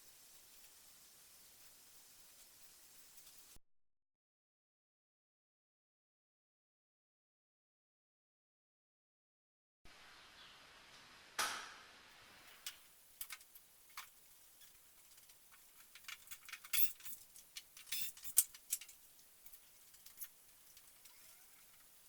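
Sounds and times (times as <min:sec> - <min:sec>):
metal hardware clicking and clinking: 0:15.5 - 0:21.4.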